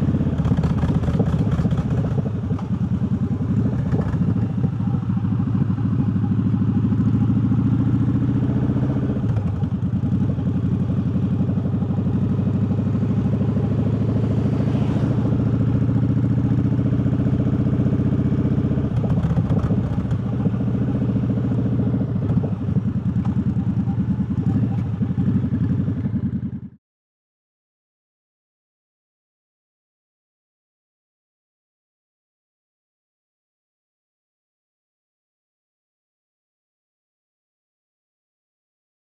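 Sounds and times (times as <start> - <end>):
motorcycle engine running low: 0.0 - 26.8.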